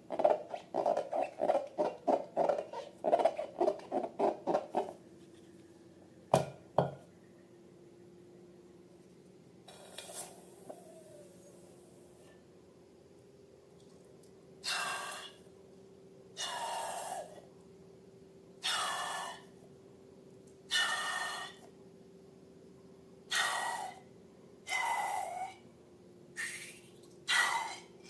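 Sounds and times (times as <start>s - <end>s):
air squealing out of balloon neck: 20.7s - 21.6s, 23.3s - 24.0s, 24.7s - 25.6s, 26.4s - 27.9s.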